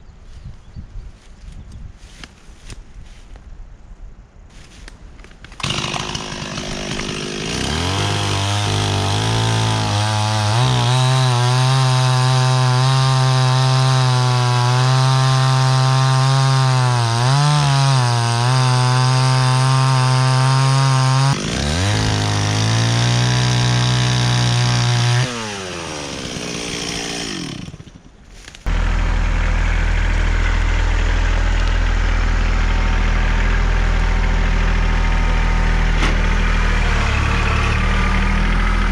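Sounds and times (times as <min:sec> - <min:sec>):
chainsaw cutting a log: 0:05.6 - 0:38.9
engine idling: 0:28.7 - 0:38.9.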